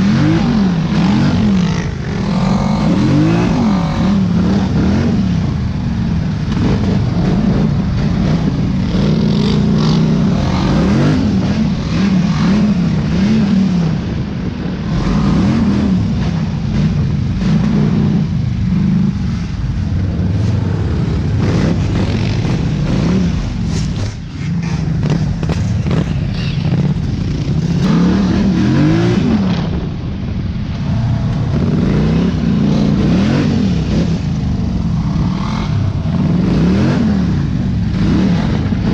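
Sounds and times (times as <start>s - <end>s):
dirt bike engine revving: 0.0s - 29.9s, 30.8s - 38.9s.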